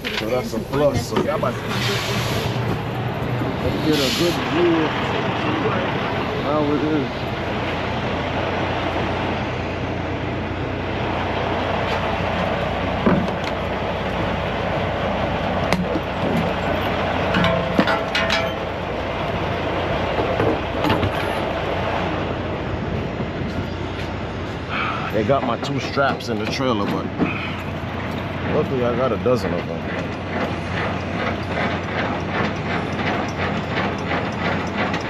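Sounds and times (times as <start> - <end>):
clunks and rattles: 0.0 - 4.0, 11.8 - 22.1, 22.8 - 35.0
truck engine rumble from cab: 0.0 - 35.0.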